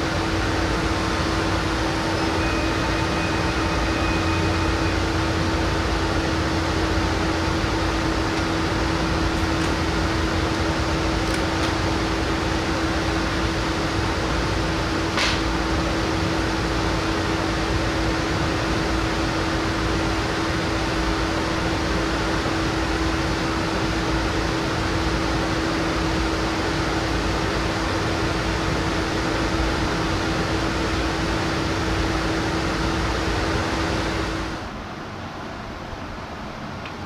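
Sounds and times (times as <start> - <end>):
laser cutter blowers whooshing: 0.0 - 17.3
steady machine hum: 0.0 - 36.2.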